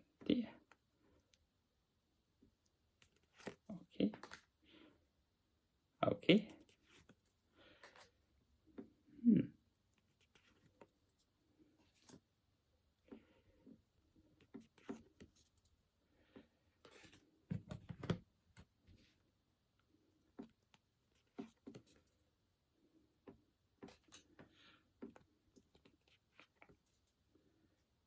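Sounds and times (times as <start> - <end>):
cards being shuffled: 3.0 - 4.5, 6.6 - 8.2, 11.9 - 12.2, 21.2 - 22.2, 23.8 - 24.4.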